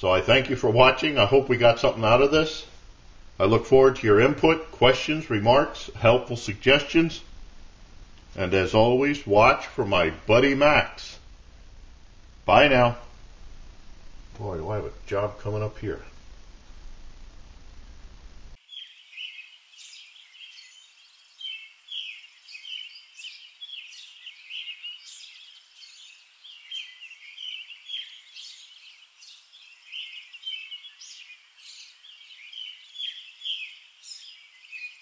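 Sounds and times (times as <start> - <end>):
birds chirping: 0.0 - 2.6, 18.6 - 35.0.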